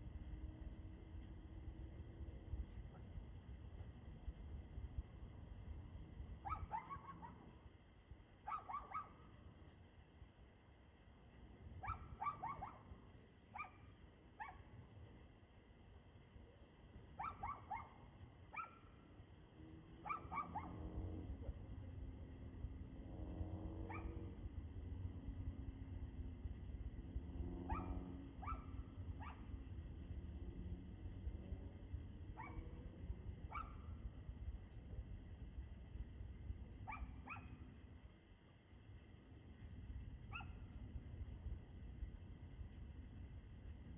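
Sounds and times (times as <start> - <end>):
low steady hum: 0.0 - 43.9
dog barking: 6.4 - 7.6, 8.4 - 9.3, 11.8 - 14.7, 17.2 - 19.0, 20.0 - 20.9, 23.8 - 24.3, 27.6 - 29.5, 32.4 - 32.8, 33.5 - 34.0, 36.8 - 37.6, 40.3 - 40.7.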